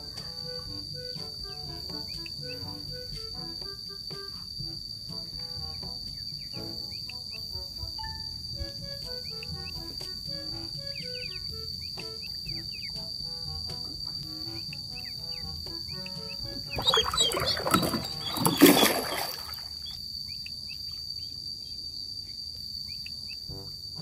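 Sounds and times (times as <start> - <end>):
insects droning: 0.0 - 24.0
short chirps: 16.6 - 20.0.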